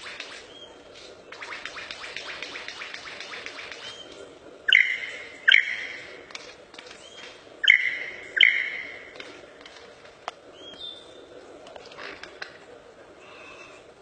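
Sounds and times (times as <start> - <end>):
songbird whistled notes: 4.7 - 6.0, 7.0 - 9.0.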